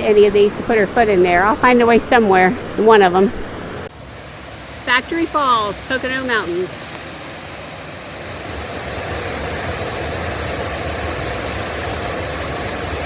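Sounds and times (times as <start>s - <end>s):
waterfall roaring: 3.9s - 13.0s.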